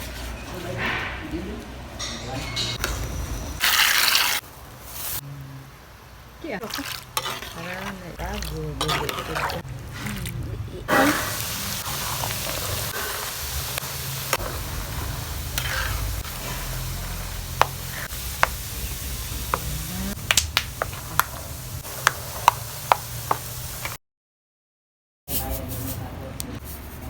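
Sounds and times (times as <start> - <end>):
peanuts sizzling in hot oil: 2.8 - 5.2, 6.4 - 9.6, 10.9 - 24.0
stirring clicks: 6.6 - 10.4, 11.4 - 18.6.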